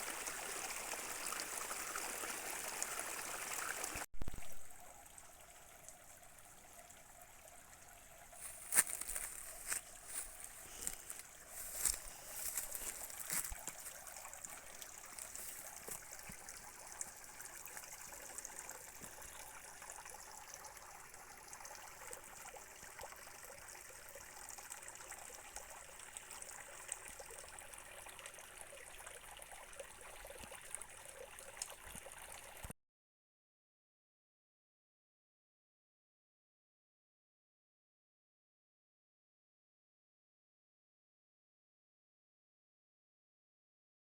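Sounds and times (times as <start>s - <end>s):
water trickling in stream: 0.0s - 32.8s.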